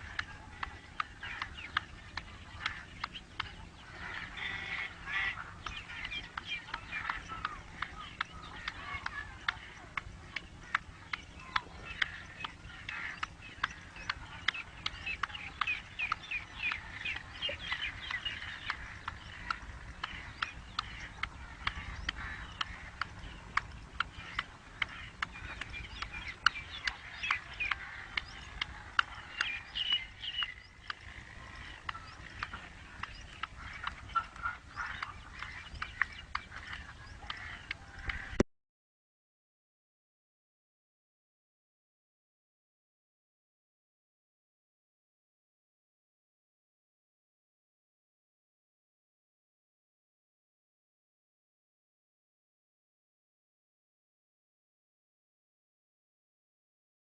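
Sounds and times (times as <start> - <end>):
bird harsh chirping calls: 0.0 - 38.4.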